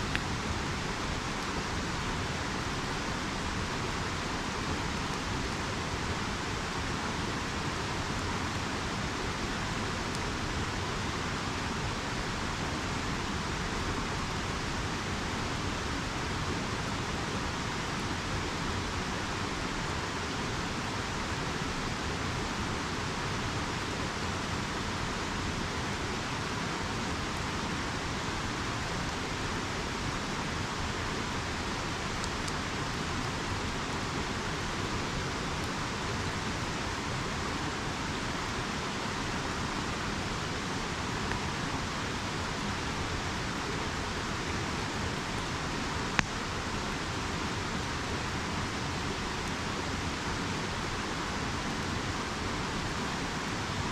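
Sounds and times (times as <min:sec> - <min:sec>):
river rushing: 0:00.0 - 0:53.9.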